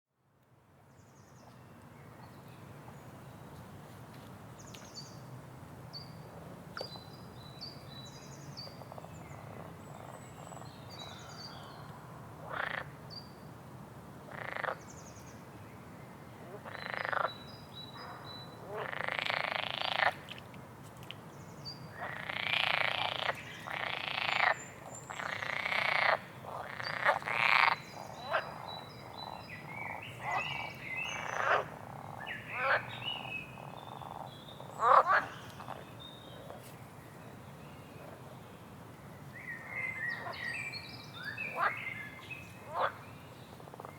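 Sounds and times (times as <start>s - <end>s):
frogs croaking: 12.4s - 13.0s, 14.3s - 14.8s, 16.6s - 20.4s, 22.0s - 36.6s, 41.2s - 42.0s, 42.7s - 43.0s.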